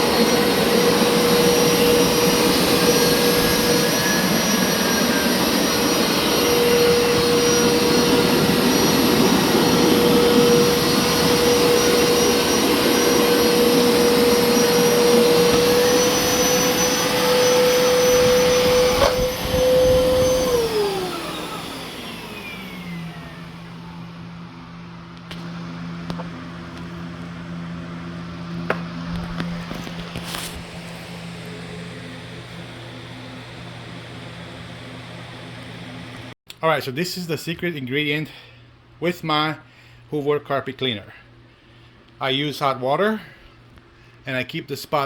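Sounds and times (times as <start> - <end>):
motor winding down: 0.0 - 24.2
carpet cleaner motor whine: 0.0 - 36.4.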